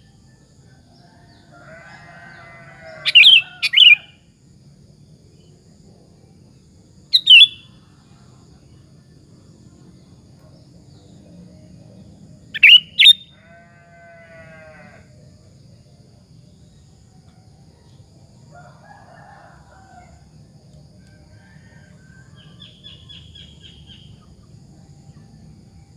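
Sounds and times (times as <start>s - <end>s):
bird sharp calls: 3.0s - 4.1s, 7.2s - 7.6s, 12.6s - 13.3s
steady low hum: 4.1s - 13.5s, 19.6s - 25.9s
bleat-like bird call: 12.6s - 15.1s.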